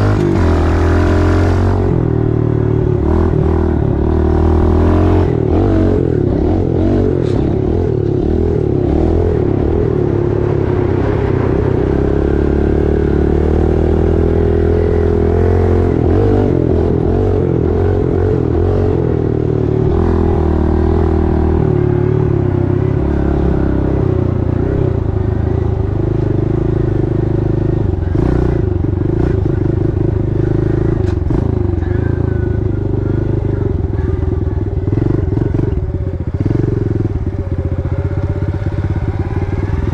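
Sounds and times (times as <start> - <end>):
pit bike engine revving: 0.0 - 25.2.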